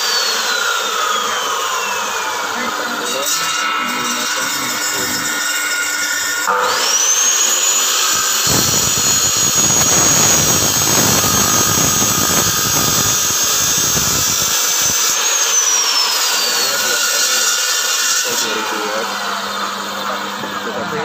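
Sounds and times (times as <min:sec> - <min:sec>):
saw blade cutting through bone: 0:00.0 - 0:19.6
electric saw motor whining: 0:00.0 - 0:21.0.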